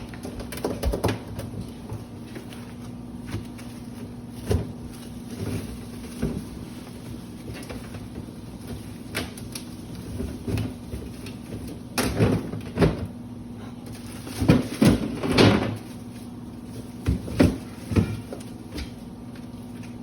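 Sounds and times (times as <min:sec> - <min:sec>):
knocks and thuds of items: 0:00.0 - 0:02.6, 0:03.2 - 0:06.6, 0:10.1 - 0:13.2, 0:14.2 - 0:15.9, 0:16.9 - 0:19.0.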